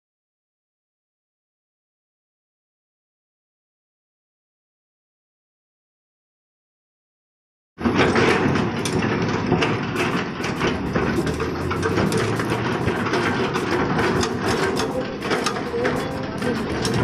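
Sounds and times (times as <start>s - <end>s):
excavator diesel engine running: 7.8s - 17.0s
metal clanks and knocks: 7.8s - 17.0s.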